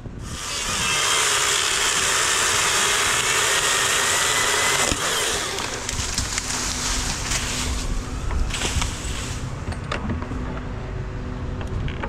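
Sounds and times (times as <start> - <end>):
chainsaw cutting hardwood: 0.2 - 9.5.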